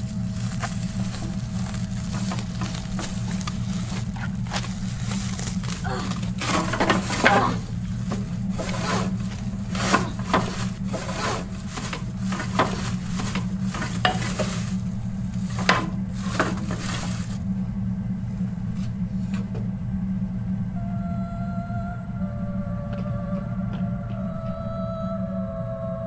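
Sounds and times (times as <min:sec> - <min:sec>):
plastic sack rustling: 0:00.0 - 0:17.5
steady low hum: 0:00.0 - 0:26.0.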